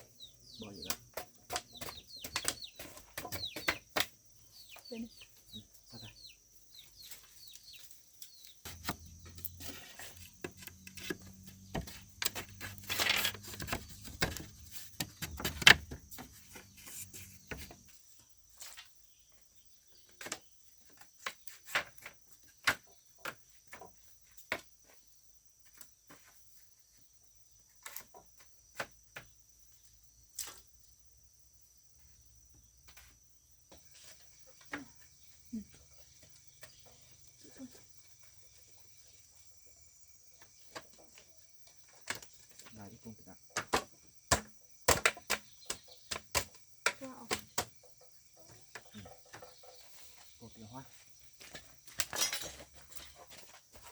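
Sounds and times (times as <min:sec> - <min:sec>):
knocks and taps on bamboo: 0:00.8 - 0:04.2, 0:10.4 - 0:16.7, 0:20.1 - 0:24.7, 0:43.5 - 0:49.5.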